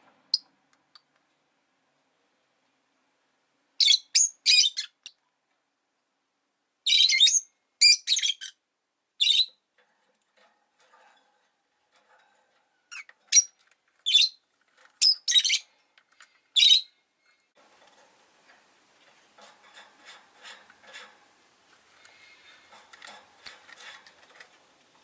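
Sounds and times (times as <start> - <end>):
lovebird chirping: 3.8 - 5.2, 6.8 - 8.6, 9.2 - 9.6, 12.9 - 14.4, 15.0 - 15.7, 16.6 - 17.0.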